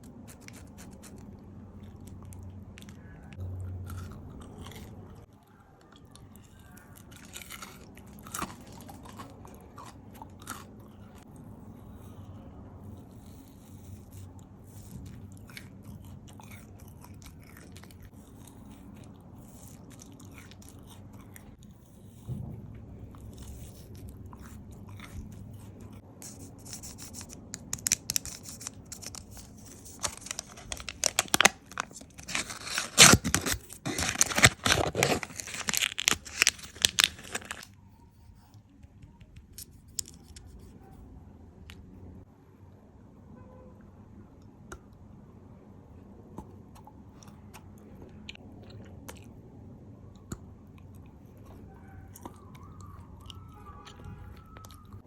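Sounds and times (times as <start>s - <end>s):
chewing and smacking: 0.0s - 37.7s, 46.3s - 55.0s
loud crunching and crackling: 26.3s - 37.8s.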